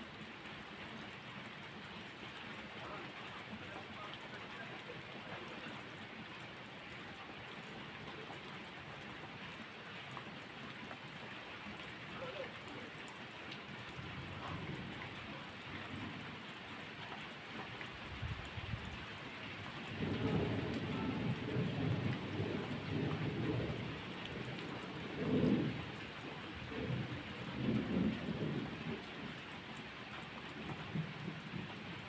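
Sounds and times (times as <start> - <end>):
steady rain falling: 0.0 - 32.0
thunder rumbling: 19.8 - 29.0.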